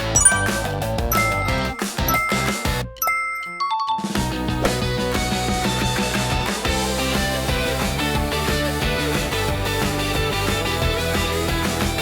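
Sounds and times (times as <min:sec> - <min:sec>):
bell-like notes stepping down: 0:00.0 - 0:04.2.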